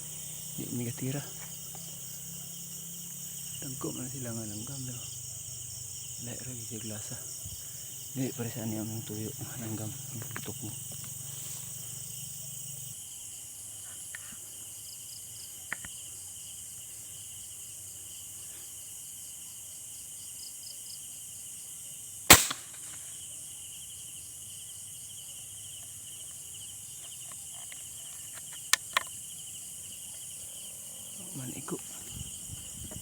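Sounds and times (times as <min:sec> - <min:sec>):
crickets and insects chirping: 0:00.0 - 0:33.0
sharp gunshot: 0:22.3 - 0:23.0.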